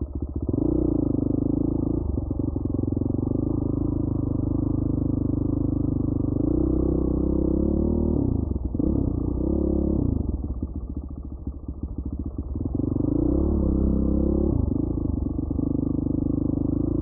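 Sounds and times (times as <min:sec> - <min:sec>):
dirt bike engine revving: 0:06.4 - 0:10.3, 0:12.7 - 0:14.9.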